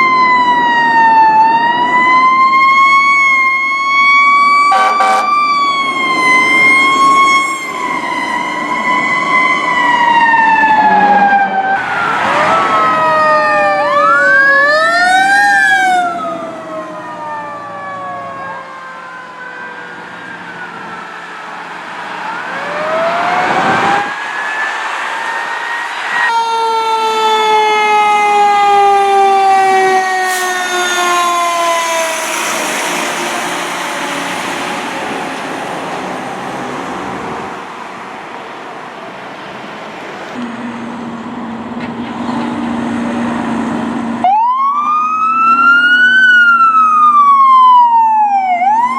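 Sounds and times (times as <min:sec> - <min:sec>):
siren rising and falling sweeps: 0:00.0 - 0:37.8, 0:42.8 - 0:48.9
fire truck siren wail: 0:00.0 - 0:48.9.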